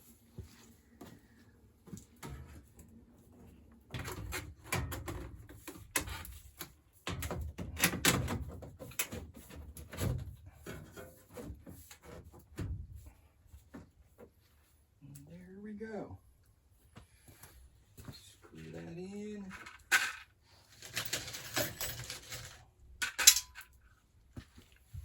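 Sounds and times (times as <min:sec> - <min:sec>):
tools knocking and scraping: 0:19.6 - 0:23.8.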